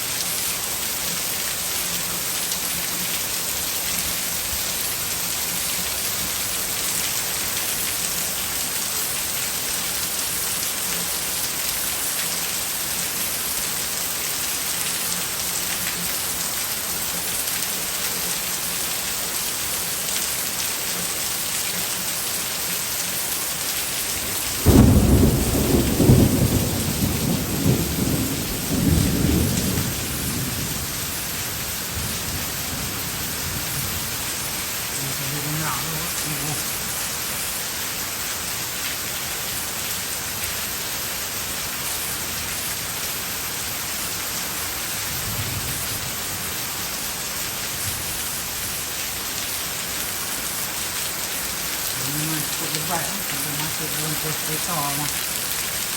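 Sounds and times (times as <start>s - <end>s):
heavy rain hissing: 0.0s - 55.9s
thunderclap and rumbling: 24.6s - 31.1s.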